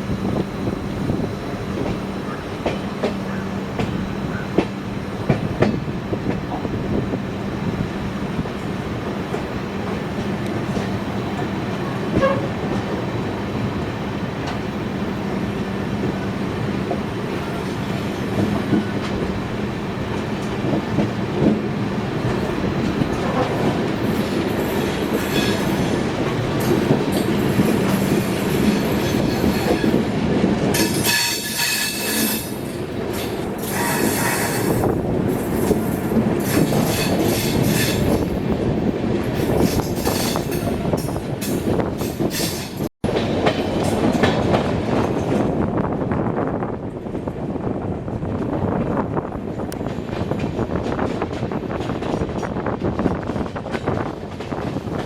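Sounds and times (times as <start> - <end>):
train rumbling: 0.0 - 55.0
high-pitched wheel squeal: 33.6 - 34.8.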